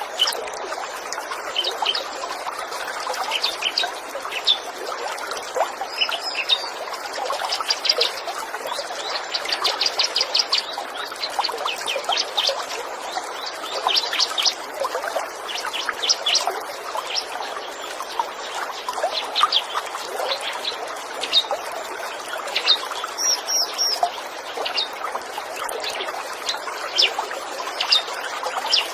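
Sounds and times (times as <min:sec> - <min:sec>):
trickle of running water: 0:00.0 - 0:28.9
small songbirds chirping: 0:05.4 - 0:25.0.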